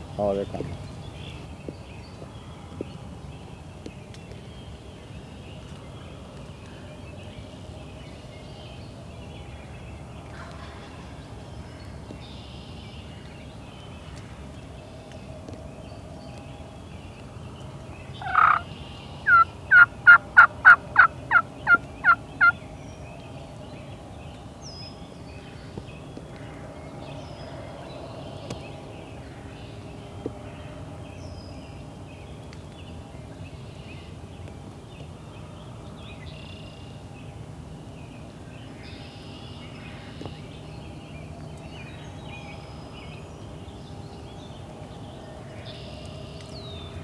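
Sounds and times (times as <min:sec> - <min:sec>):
turkey call: 0:18.2 - 0:18.7, 0:19.3 - 0:22.6
turkey yelps: 0:18.2 - 0:18.7, 0:19.3 - 0:22.5.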